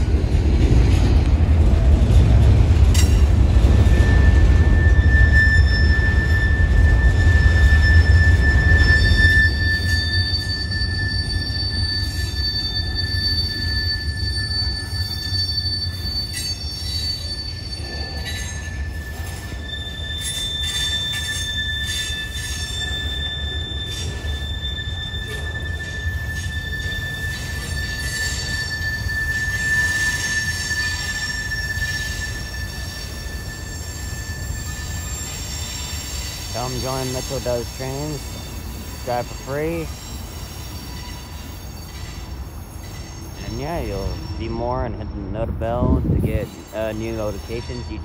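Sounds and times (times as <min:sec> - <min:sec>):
train wheels squealing: 0:00.0 - 0:48.0
freight cars rolling past: 0:16.6 - 0:47.9.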